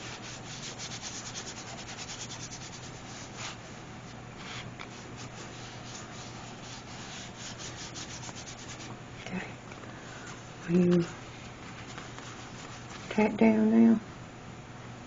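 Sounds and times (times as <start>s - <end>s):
fingers rubbing over paper: 0.0s - 3.6s, 4.4s - 8.9s, 10.8s - 13.3s.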